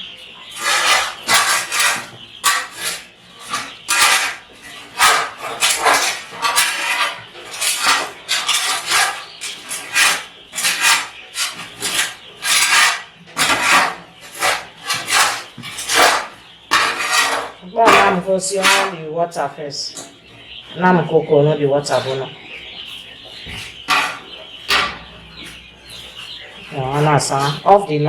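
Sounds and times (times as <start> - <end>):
rough scraping on floor: 0.5 - 18.9, 23.5 - 24.4.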